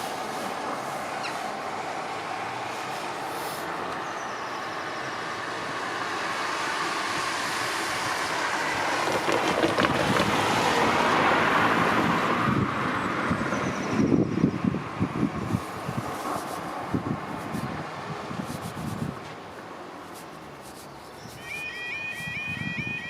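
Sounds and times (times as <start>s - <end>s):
vehicle passing by: 5.1s - 19.2s
wind buffeting microphone: 7.2s - 19.3s, 22.2s - 23.0s.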